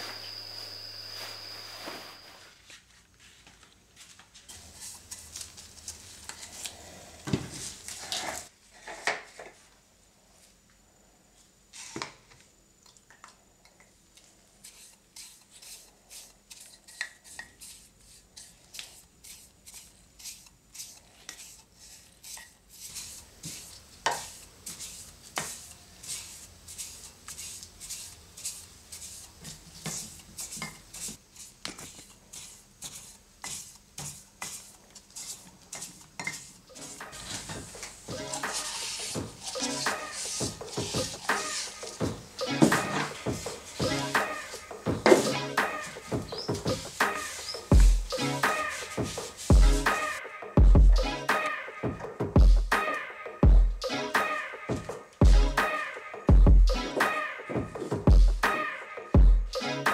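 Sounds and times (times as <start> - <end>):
bristle brush scratching wood: 14.6 - 50.2.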